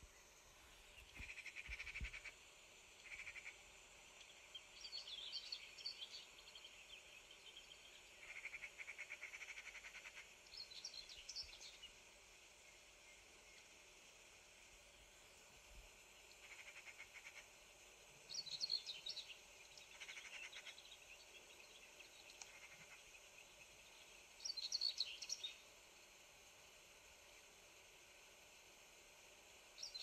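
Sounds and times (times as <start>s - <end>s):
songbird trills and chirps: 4.2s - 12.0s, 18.2s - 25.6s.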